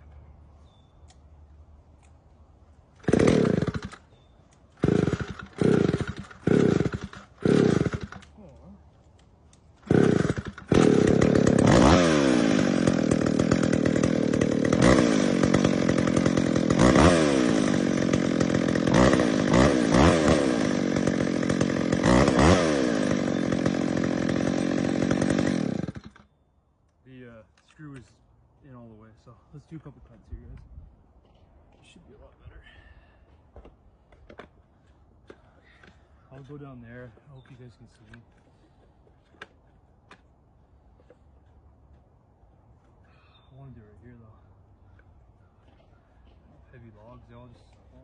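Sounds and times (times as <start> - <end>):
chainsaw engine revving: 3.0 - 4.1, 4.8 - 8.4, 9.8 - 26.3
chainsaw pull-start bursts: 3.0 - 4.2, 4.8 - 8.4, 9.8 - 26.3.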